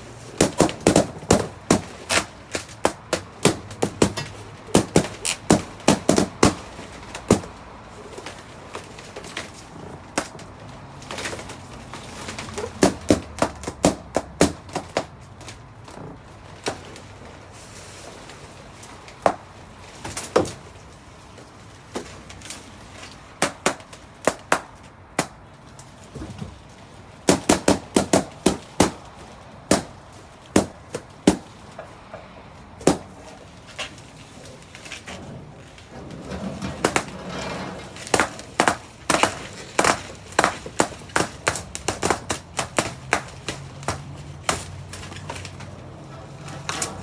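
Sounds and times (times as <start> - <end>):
balloons popping: 0.4 - 7.5.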